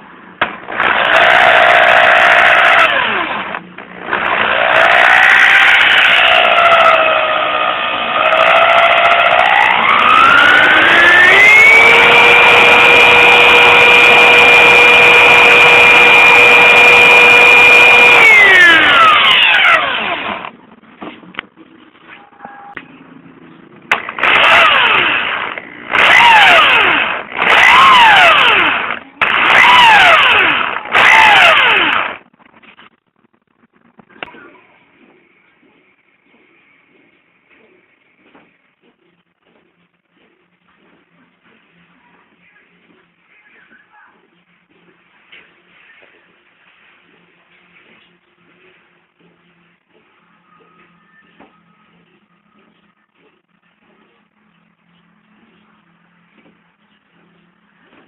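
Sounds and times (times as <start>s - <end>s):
alternator motor whining: 0.7s - 20.6s, 23.9s - 32.2s.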